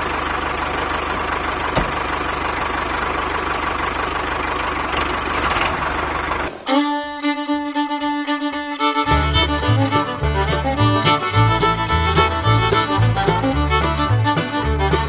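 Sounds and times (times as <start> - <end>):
fiddle music: 6.5 - 15.0.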